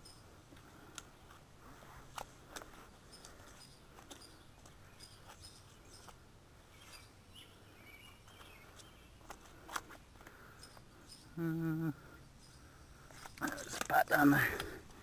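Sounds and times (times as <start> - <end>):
faint bird chirps: 0.0 - 0.4, 2.7 - 9.6, 10.3 - 13.7
soft scuffs and clicks: 8.2 - 10.8.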